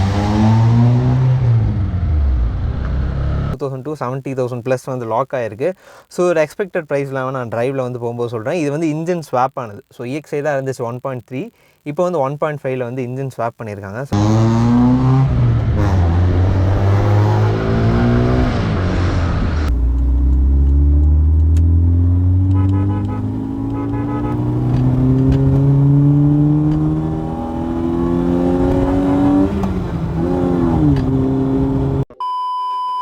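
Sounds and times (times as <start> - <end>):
car engine accelerating hard: 0.0 - 3.6, 14.2 - 32.0
electronic beep tone: 32.1 - 33.0.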